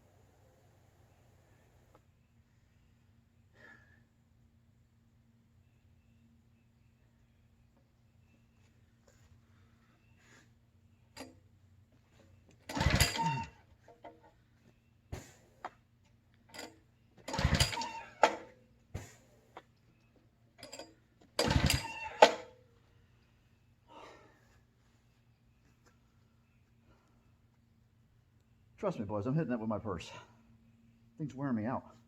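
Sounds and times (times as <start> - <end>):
engine turning over: 12.6 - 13.6, 17.2 - 18.5, 21.4 - 22.5
recoil starter cord pulls: 12.6 - 14.2, 16.5 - 18.5, 20.6 - 22.6.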